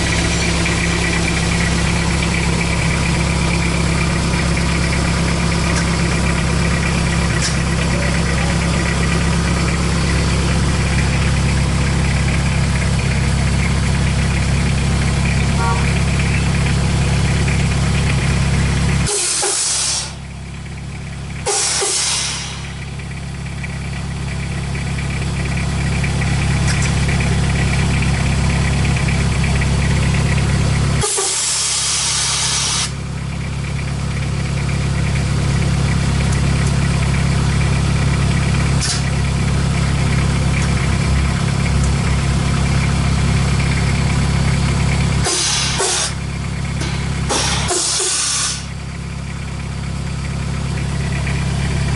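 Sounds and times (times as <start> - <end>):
diesel engine idling: 0.0 - 51.9
loud hissing bursts: 21.5 - 22.6, 31.0 - 33.0, 45.2 - 46.2, 47.3 - 48.7.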